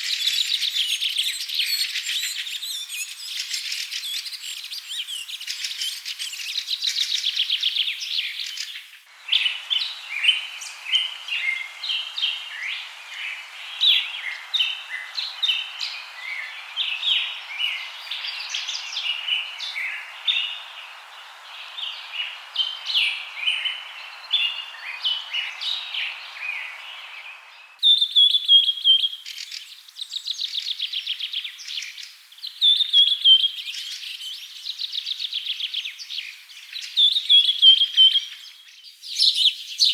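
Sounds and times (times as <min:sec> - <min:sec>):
soft hiss: 0:00.0 - 0:28.0
birds chirping: 0:00.0 - 0:29.9.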